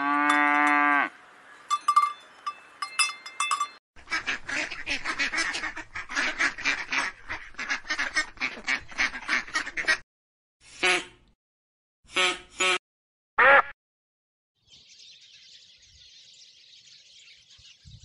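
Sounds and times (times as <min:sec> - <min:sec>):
ducks quacking: 0:04.0 - 0:10.0.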